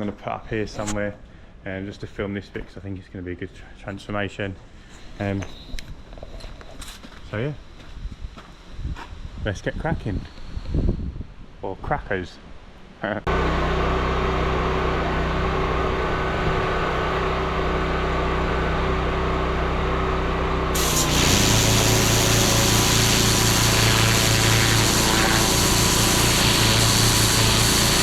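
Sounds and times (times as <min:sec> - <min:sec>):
pressure washer engine running: 0:20.8 - 0:28.0
water jet hissing: 0:20.8 - 0:28.0.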